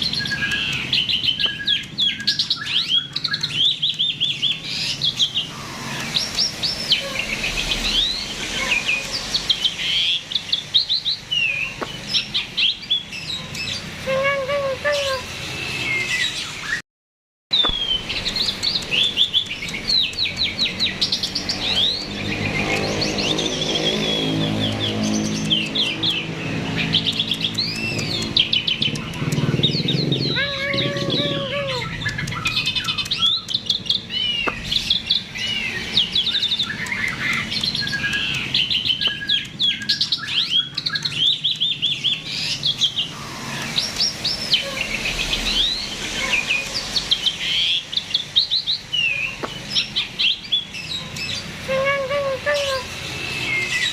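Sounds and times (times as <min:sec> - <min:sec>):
starling singing: 0:00.0 - 0:16.8, 0:17.5 - 0:53.9.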